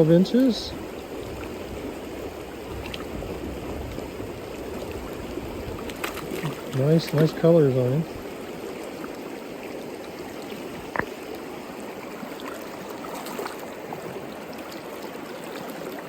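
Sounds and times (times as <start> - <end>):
stream water running: 0.0 - 16.0.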